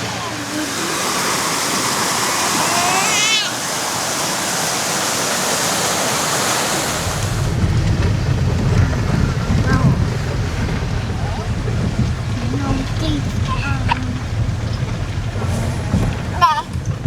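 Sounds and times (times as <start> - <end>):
floodwater rushing: 0.0 - 17.0
wind buffeting microphone: 4.0 - 17.0.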